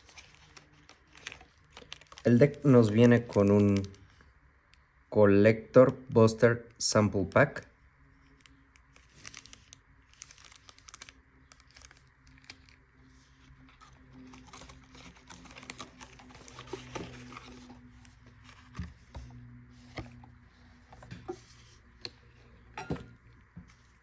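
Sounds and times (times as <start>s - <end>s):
packaging rustling and crinkling: 0.0s - 4.4s, 8.2s - 22.7s.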